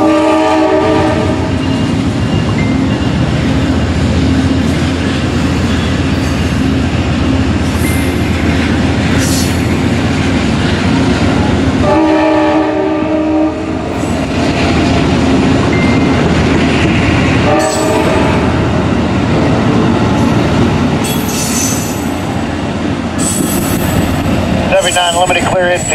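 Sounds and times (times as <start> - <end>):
locomotive air horn: 0.0 - 1.5, 11.8 - 13.7, 17.4 - 18.4
passing train noise: 0.0 - 25.9.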